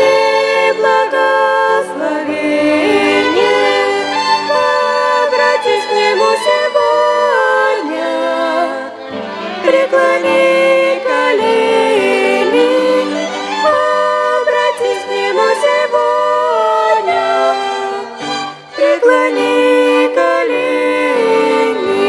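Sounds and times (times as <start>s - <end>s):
violin ensemble playing: 0.0s - 22.0s.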